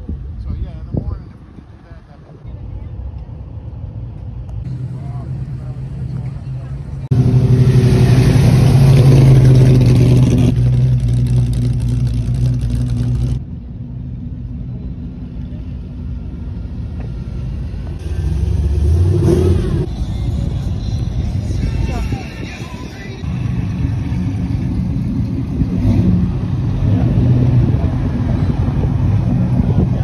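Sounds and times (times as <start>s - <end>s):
car engine running: 4.7s - 13.4s
engine rev: 4.7s - 13.4s, 16.9s - 30.0s.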